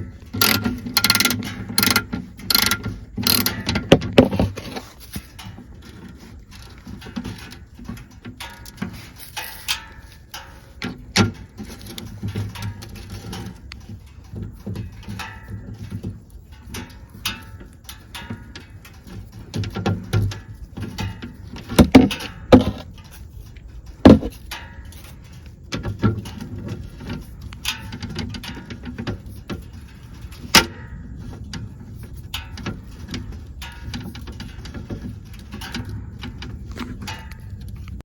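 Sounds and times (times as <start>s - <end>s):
socket wrench clicking and scraping: 0.0s - 5.4s
loud metallic clanks: 24.0s - 24.6s.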